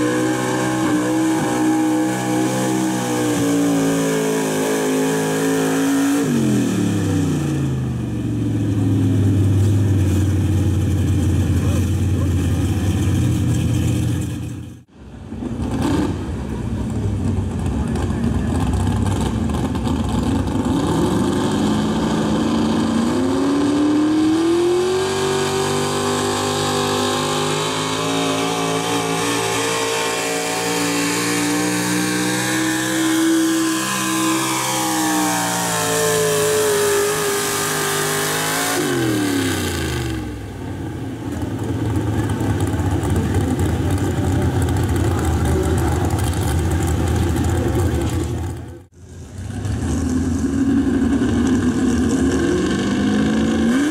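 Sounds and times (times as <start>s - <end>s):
truck engine revving: 0.0s - 53.9s
rough low engine rumble: 6.4s - 23.4s, 38.8s - 53.7s.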